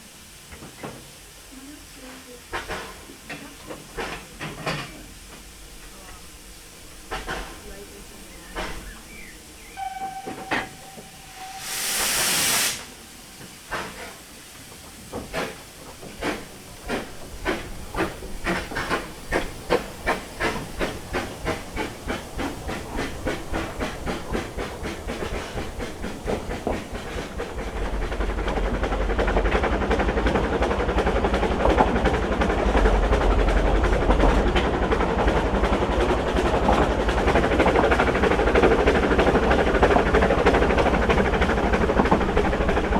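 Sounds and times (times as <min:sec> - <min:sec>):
steam hiss: 0:00.0 - 0:29.5
steam locomotive exhaust chuffs: 0:01.2 - 0:42.9.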